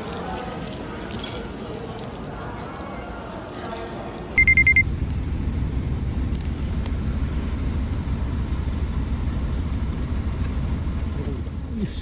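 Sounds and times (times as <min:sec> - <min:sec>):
rapid high electronic beeps: 0:04.4 - 0:04.9
bus engine rumble from inside: 0:04.7 - 0:12.0.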